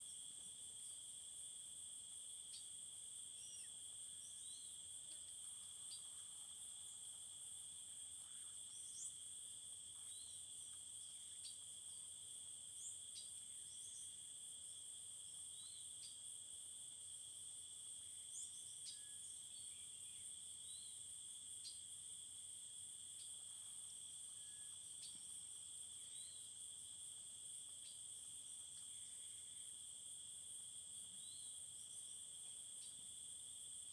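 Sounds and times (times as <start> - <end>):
insects trilling: 2.5 - 16.7.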